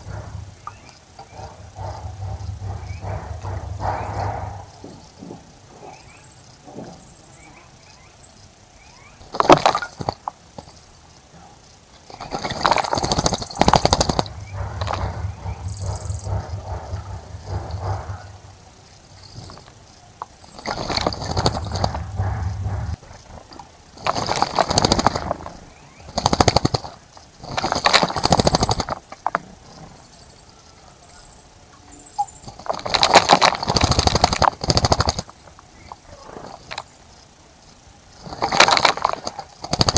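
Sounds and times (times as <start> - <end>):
faint bird chirps: 0.0 - 5.2, 5.8 - 10.0, 29.7 - 32.7.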